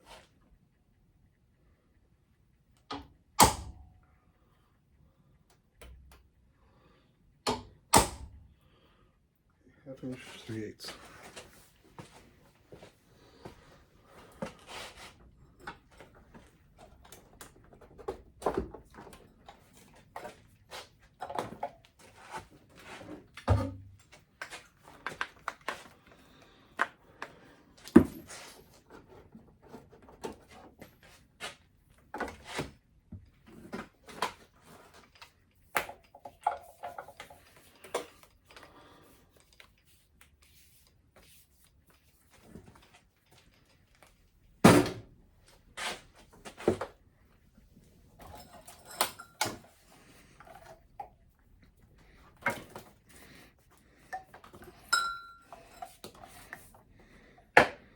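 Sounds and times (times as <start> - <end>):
metal tools clinking and knocking: 48.2 - 49.8, 54.1 - 56.1.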